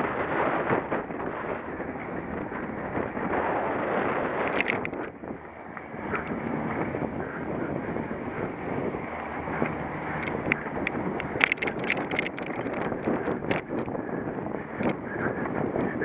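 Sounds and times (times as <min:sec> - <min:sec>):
wind buffeting microphone: 0:00.0 - 0:16.0
bike clicks and rattles: 0:04.3 - 0:16.0.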